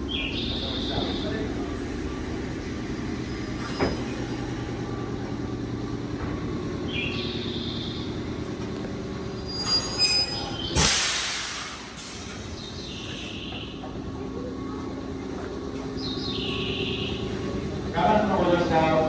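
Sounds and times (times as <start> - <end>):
train equipment humming: 0.0 - 19.0
high-pitched squeals: 9.4 - 11.0
loud air hiss: 10.8 - 12.3.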